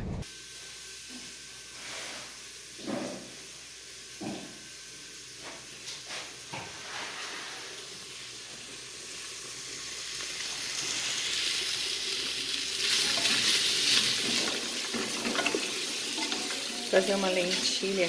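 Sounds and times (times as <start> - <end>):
steady kitchen hiss: 0.2 - 18.0.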